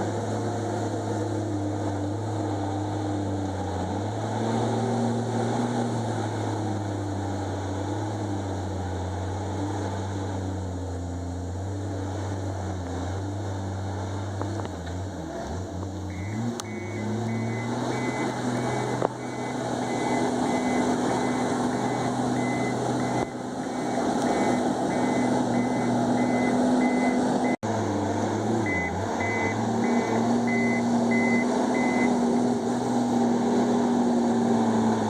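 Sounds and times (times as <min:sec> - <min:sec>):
bulldozer diesel engine running: 0:00.0 - 0:35.0
reversing alarm beeping: 0:16.1 - 0:27.6, 0:28.6 - 0:32.2.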